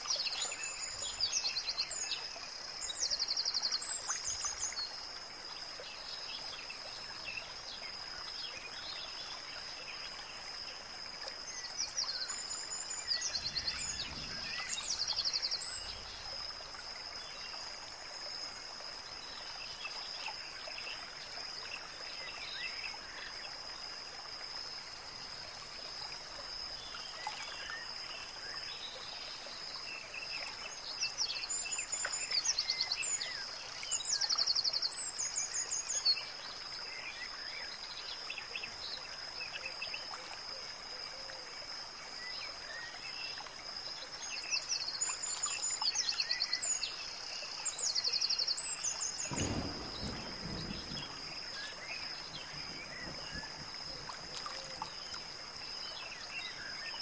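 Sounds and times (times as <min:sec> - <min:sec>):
steady hiss: 0:00.0 - 0:27.0, 0:46.1 - 0:57.0
constant high-pitched tone: 0:11.2 - 0:57.0.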